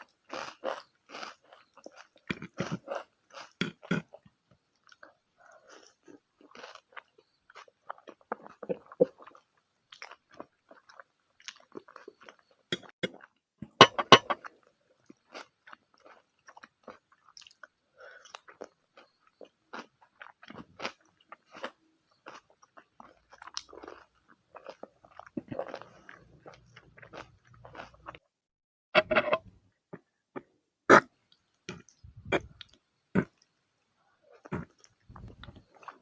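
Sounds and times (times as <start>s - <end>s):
chewing and biting food: 0.0s - 13.4s, 14.4s - 28.2s, 34.4s - 36.0s
mouth clicks: 31.7s - 33.4s.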